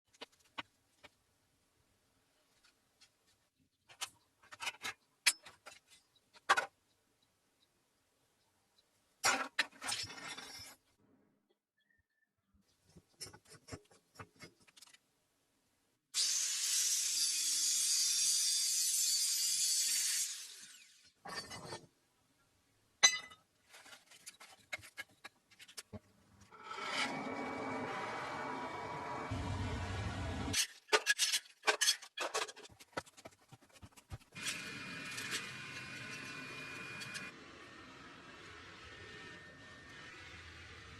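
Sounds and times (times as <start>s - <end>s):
objects clattering and knocking: 21.2s - 22.0s, 23.0s - 26.6s, 30.5s - 35.4s.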